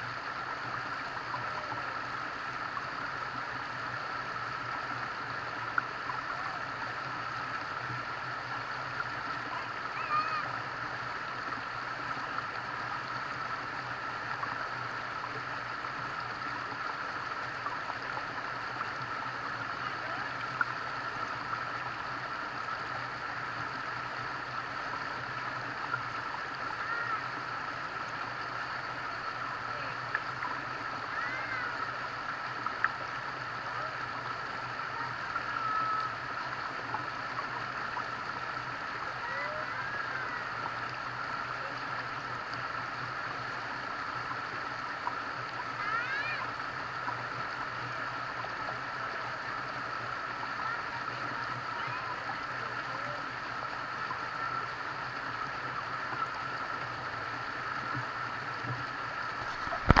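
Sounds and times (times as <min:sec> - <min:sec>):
flowing stream: 0:00.0 - 1:00.0
running water: 0:00.0 - 1:00.0.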